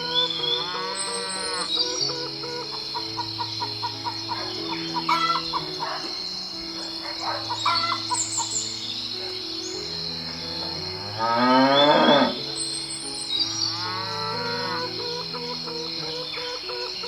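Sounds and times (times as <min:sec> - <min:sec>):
hens clucking: 0:00.0 - 0:09.5, 0:13.5 - 0:17.0
high insect-like drone: 0:00.0 - 0:17.0
low held background notes: 0:00.0 - 0:17.0
small birds chirping: 0:00.0 - 0:17.0
rooster crowing: 0:00.2 - 0:06.2, 0:07.0 - 0:08.5.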